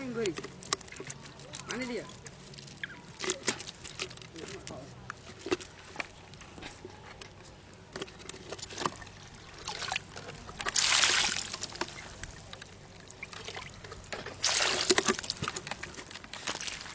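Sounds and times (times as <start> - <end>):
water gushing: 10.7 - 12.5, 14.4 - 15.4.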